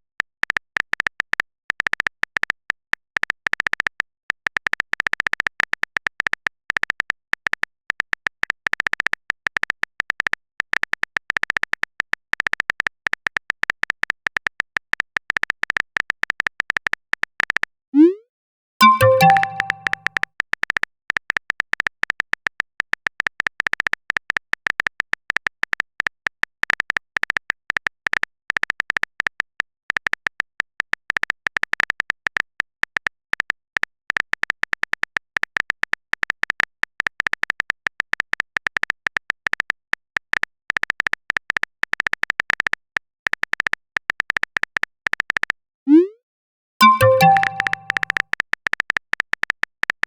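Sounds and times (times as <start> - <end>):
phone keyboard typing clicks: 18.8 - 20.2, 46.8 - 48.2.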